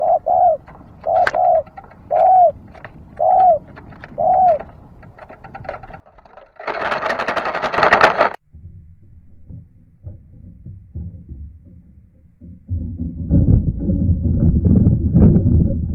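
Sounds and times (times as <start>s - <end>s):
dove cooing: 0.0s - 6.0s.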